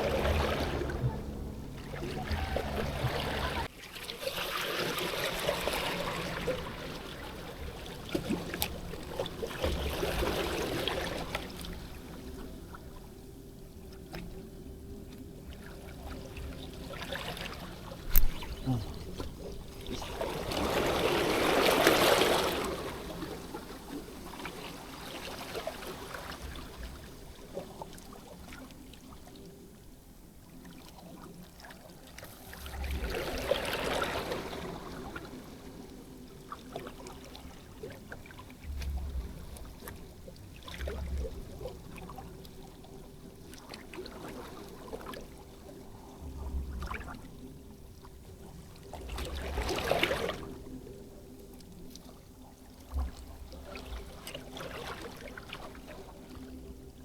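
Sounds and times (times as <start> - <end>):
water washing against shore: 0.0 - 3.7.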